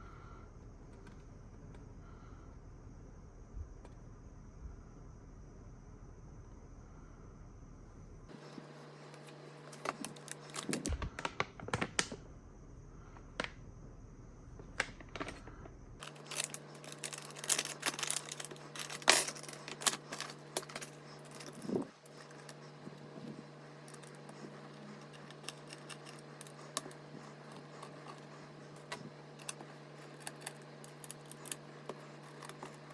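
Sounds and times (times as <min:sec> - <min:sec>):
steady low hum: 0:00.0 - 0:32.9
small hard parts clicking: 0:16.0 - 0:32.9.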